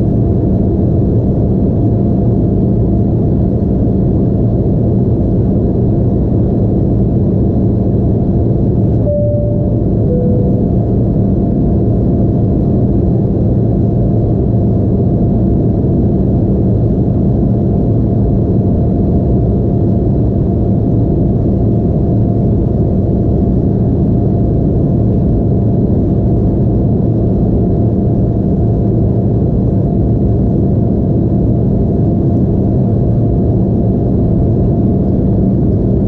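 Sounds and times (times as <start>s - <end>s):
jet engine and airflow rumble: 0.0s - 36.0s
faint steady hum: 8.9s - 13.4s.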